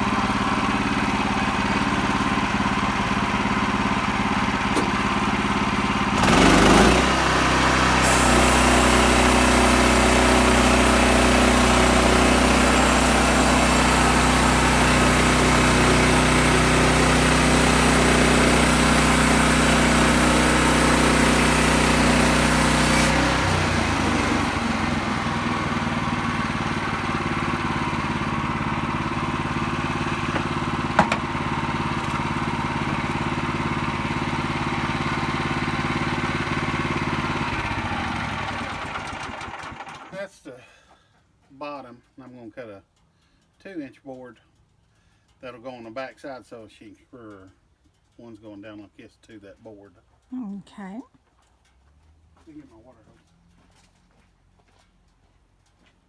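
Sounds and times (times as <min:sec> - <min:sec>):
sawmill engine running: 0:00.0 - 0:40.3
saw blade cutting wood: 0:06.2 - 0:24.4.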